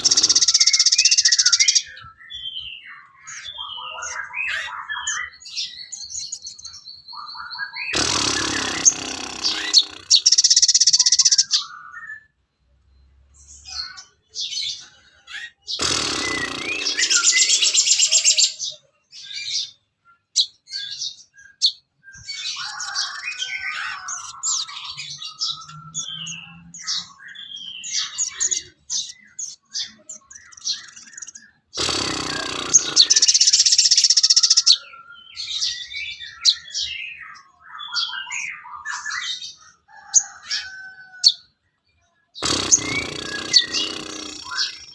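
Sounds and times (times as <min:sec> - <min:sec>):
songbird fast trills: 0:00.0 - 0:01.9, 0:07.9 - 0:11.6, 0:30.5 - 0:34.8, 0:42.4 - 0:44.9
bird chirps and whistled notes: 0:00.0 - 0:08.9.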